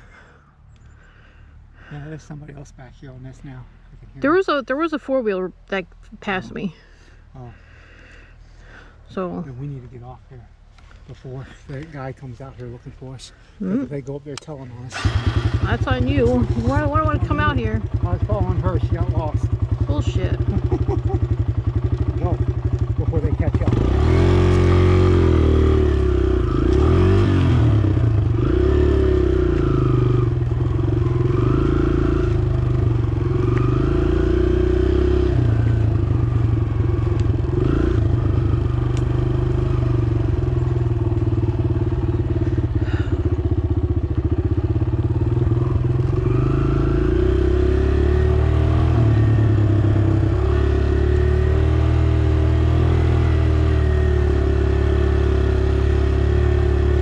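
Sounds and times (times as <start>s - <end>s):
dirt bike engine running: 14.9s - 57.0s.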